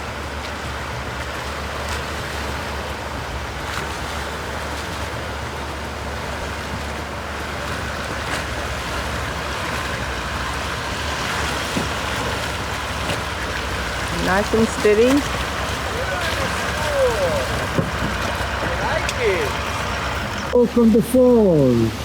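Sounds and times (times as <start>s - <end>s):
engine running low: 0.0s - 22.0s
rushing water: 0.0s - 22.0s
faint knocks: 15.2s - 19.2s.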